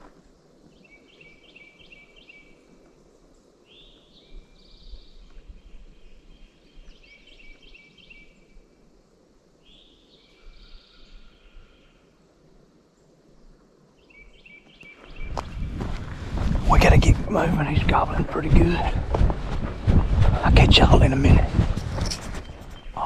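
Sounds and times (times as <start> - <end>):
songbirds chirping: 0.0 - 23.0
wind on microphone: 15.1 - 23.0.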